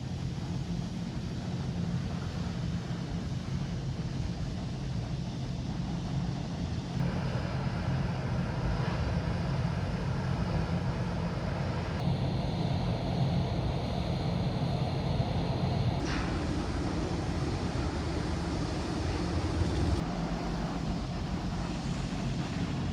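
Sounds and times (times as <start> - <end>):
low vehicle rumble: 16.0 - 22.4.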